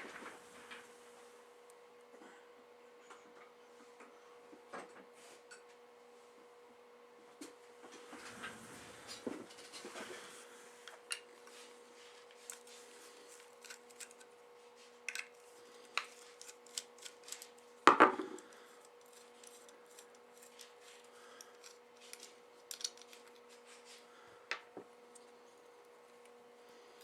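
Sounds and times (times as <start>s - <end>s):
screwdriver clicking and scraping metal: 18.9s - 20.8s, 21.4s - 23.5s.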